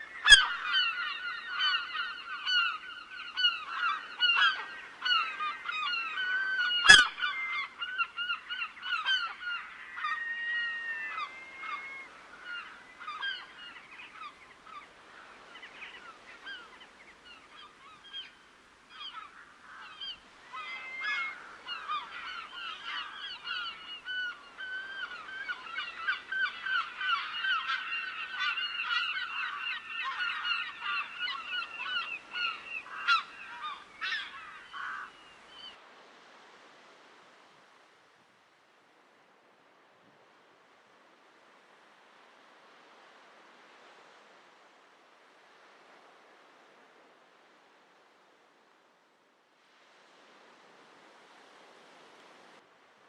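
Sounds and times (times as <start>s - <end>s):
waterbirds honking: 0.1s - 16.8s, 17.6s - 35.7s.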